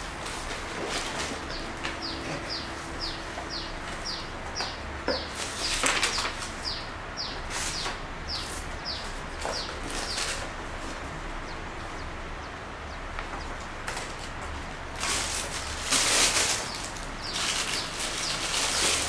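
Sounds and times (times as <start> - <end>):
bird chirping: 1.4 - 10.4
paper rustling: 5.3 - 6.6, 14.9 - 19.0.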